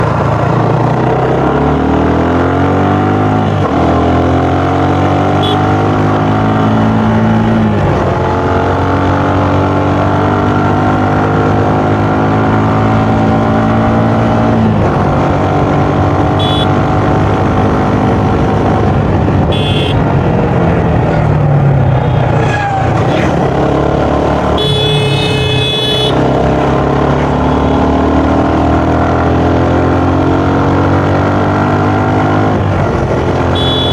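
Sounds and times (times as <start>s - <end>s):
motorcycle engine accelerating: 0.0s - 33.9s
horn beeps: 5.4s - 5.8s, 16.3s - 16.9s, 19.5s - 20.0s, 24.5s - 26.2s, 33.5s - 33.9s.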